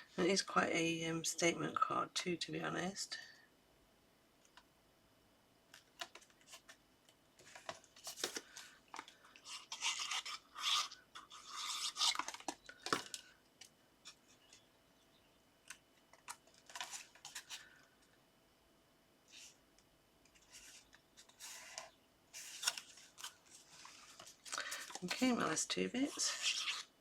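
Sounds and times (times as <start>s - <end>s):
paper rustling and rubbing: 7.4s - 12.5s, 20.3s - 27.0s.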